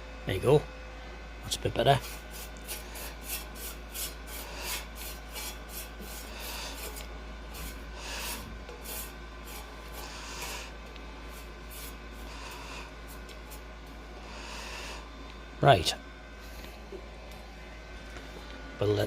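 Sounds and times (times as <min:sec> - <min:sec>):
paintbrush scratching on metal: 0:02.0 - 0:13.7.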